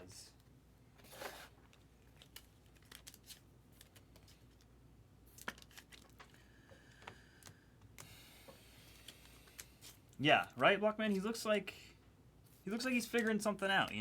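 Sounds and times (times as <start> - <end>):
trading cards being handled: 1.0 - 4.7, 5.3 - 6.5.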